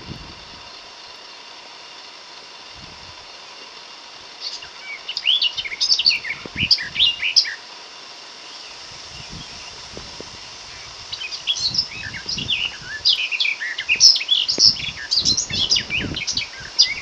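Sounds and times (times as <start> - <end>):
small bird chirping: 4.3 - 7.8, 8.4 - 17.0.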